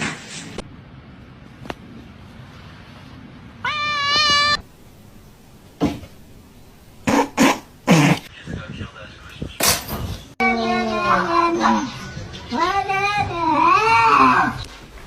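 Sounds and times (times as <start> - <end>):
cat meowing: 3.6 - 4.7.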